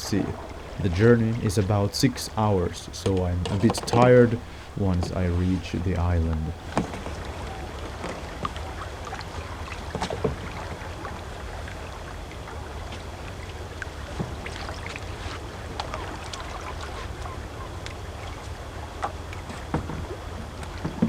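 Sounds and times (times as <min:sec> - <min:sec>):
low wind rumble: 0:00.0 - 0:09.7
paddle splashing water: 0:00.0 - 0:21.0.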